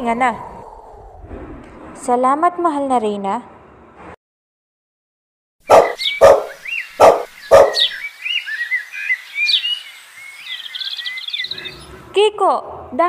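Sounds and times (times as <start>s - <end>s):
birds chirping: 5.6s - 12.2s
dog barking: 5.7s - 8.0s.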